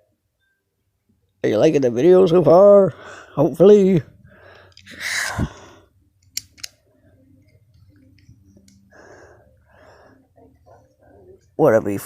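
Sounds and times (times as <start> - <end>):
sharp clicks: 6.2 - 6.8.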